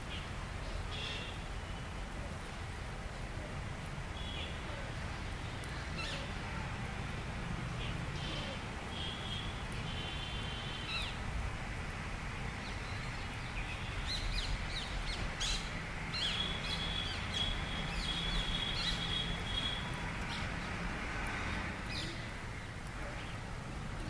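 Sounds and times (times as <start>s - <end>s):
birds chirping: 12.6s - 20.8s.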